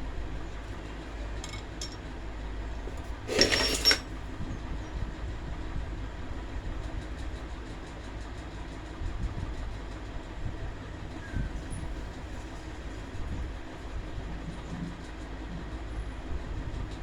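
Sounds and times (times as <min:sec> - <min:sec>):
metallic clatter with ringing: 0:01.4 - 0:02.0, 0:03.3 - 0:04.1.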